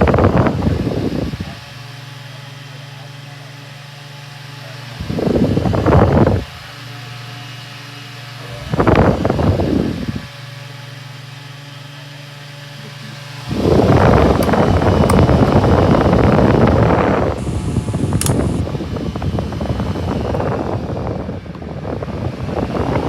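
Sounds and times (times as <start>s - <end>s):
airflow buffeting microphone: 0.0s - 1.6s, 5.0s - 6.7s, 8.5s - 10.3s, 13.3s - 23.0s
table fan motor hum: 0.0s - 3.2s, 4.4s - 23.0s.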